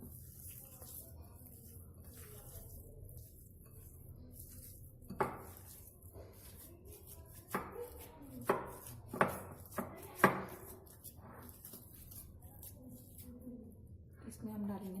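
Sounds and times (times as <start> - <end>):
potatoes being mashed: 0.0 - 13.4
utensil knocking against bowl: 8.4 - 10.7.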